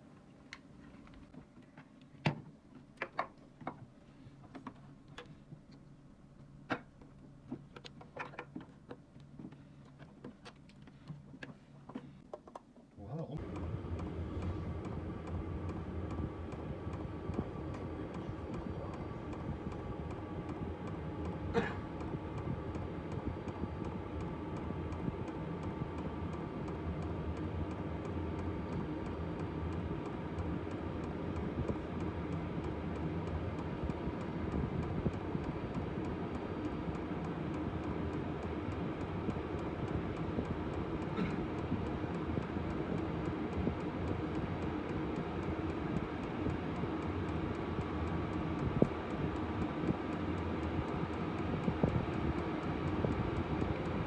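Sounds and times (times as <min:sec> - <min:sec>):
faint steady whine: 0:00.0 - 0:54.0
air heater blower drone: 0:13.0 - 0:54.0.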